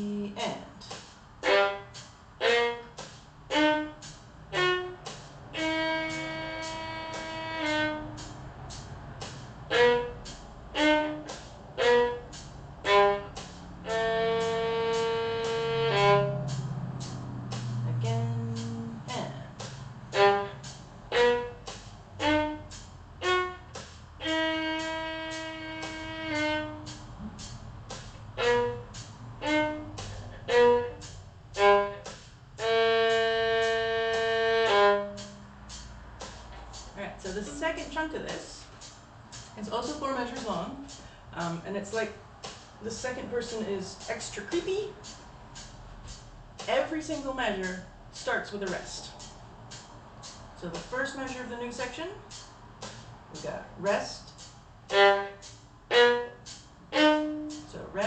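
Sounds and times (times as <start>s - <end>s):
solo violin arpeggio melody: 1.4s - 8.3s, 9.7s - 16.7s, 20.0s - 35.5s, 54.9s - 58.0s.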